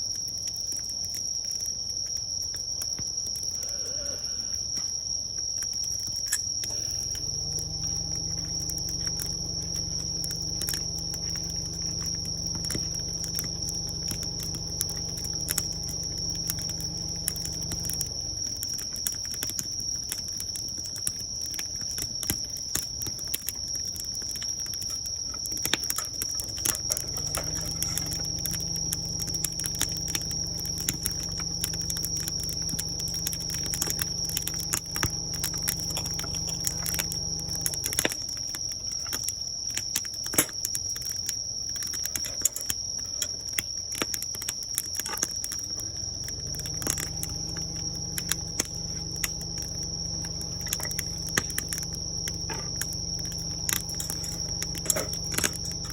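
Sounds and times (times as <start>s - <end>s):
crickets trilling: 0.0s - 55.9s
wood fire crackling and popping: 0.0s - 55.9s
low droning hum: 6.8s - 20.5s, 25.0s - 38.7s, 45.8s - 55.9s.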